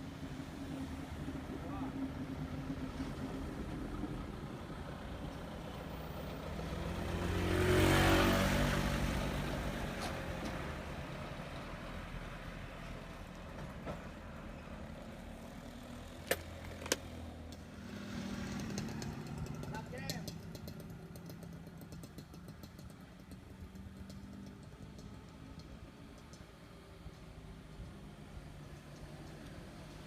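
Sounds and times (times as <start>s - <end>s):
heavy vehicle passing: 6.2s - 11.0s, 17.8s - 21.6s.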